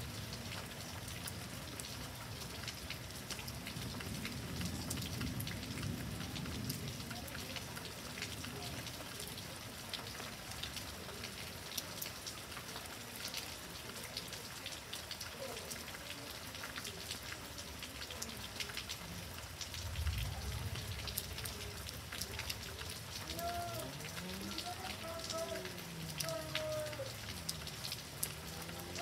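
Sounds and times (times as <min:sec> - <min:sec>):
heavy rain: 0:00.0 - 0:29.0
raindrops ticking on surface: 0:00.0 - 0:29.0
low thunder rumble: 0:19.8 - 0:22.1.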